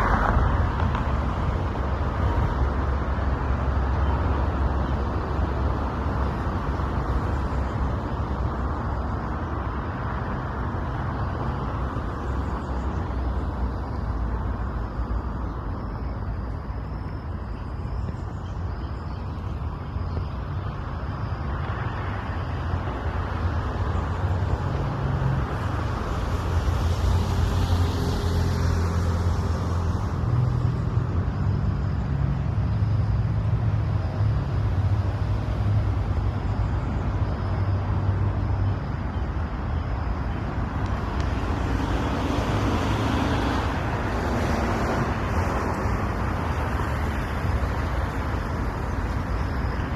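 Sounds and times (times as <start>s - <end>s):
rumble of passing vehicles: 0.0s - 49.9s.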